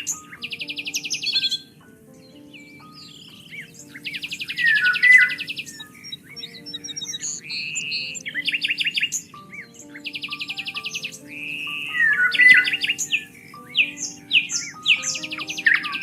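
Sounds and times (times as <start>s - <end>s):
soft background music: 0.0s - 16.0s
songbirds singing and chirping: 0.0s - 16.0s.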